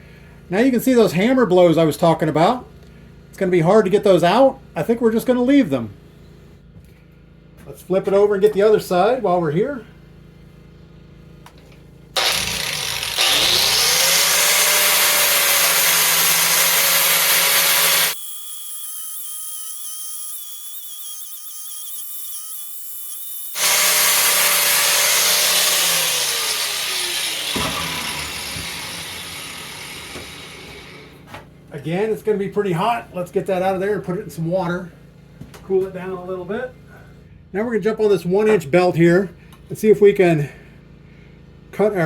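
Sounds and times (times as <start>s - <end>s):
angle grinder grinding steel: 12.2s - 31.2s.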